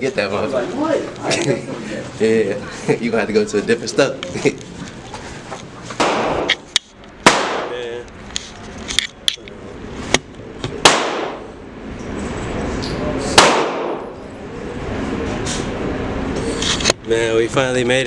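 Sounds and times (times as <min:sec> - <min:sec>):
echoing gunshots: 0:06.0 - 0:06.6, 0:07.2 - 0:07.8, 0:10.8 - 0:11.5, 0:13.4 - 0:14.2.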